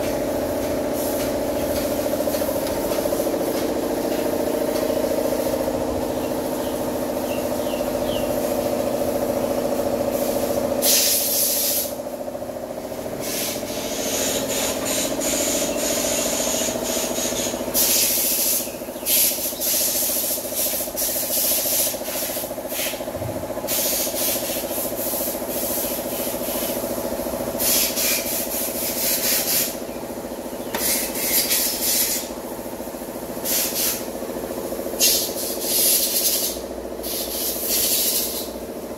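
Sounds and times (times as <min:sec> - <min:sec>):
small engine running: 0:00.0 - 0:38.9
hissing rasping bursts: 0:35.0 - 0:38.5.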